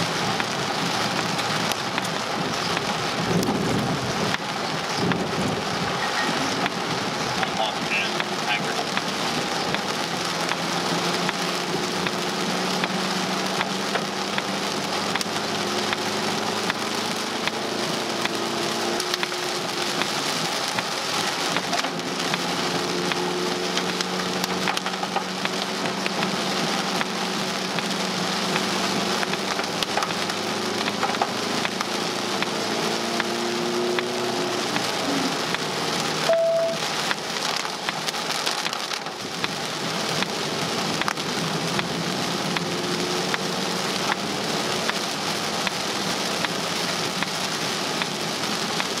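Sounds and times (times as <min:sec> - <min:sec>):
engine and tyre hum: 0:00.0 - 0:49.0
heavy rain on car windshield: 0:00.0 - 0:49.0.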